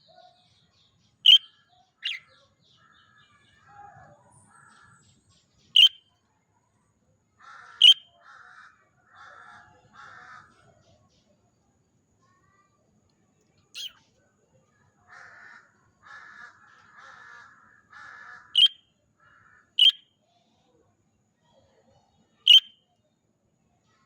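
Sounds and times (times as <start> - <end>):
budgerigar rapid chattering: 1.2 - 2.3, 5.8 - 6.0, 7.4 - 10.5, 13.8 - 14.0, 16.1 - 18.8, 19.4 - 20.0, 22.5 - 22.7
budgerigar sharp chirps: 1.3 - 2.3, 5.8 - 6.0, 7.7 - 8.1, 13.8 - 14.0, 18.6 - 18.8, 19.8 - 20.0, 22.5 - 22.7.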